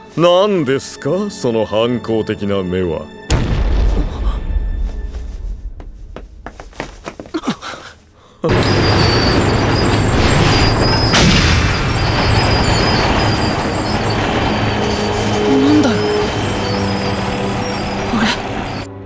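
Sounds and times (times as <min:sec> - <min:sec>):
heavy construction machinery rumbling: 0:08.5 - 0:18.9.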